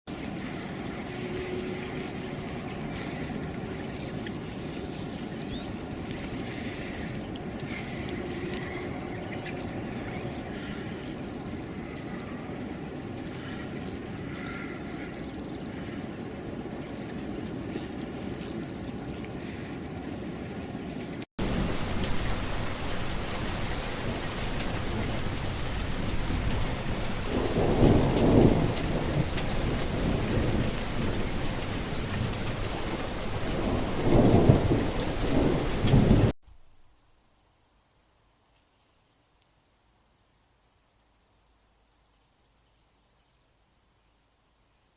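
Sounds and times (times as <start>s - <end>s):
rain hissing: 0.1s - 36.8s
thunder rumble: 21.4s - 36.3s.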